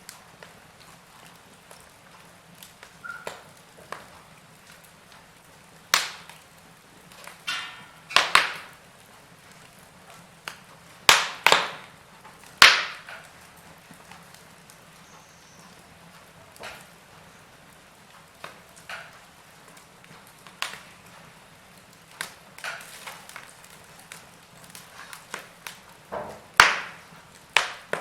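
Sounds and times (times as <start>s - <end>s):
wood fire crackling and popping: 0.0s - 28.0s
short whistle: 3.0s - 3.2s.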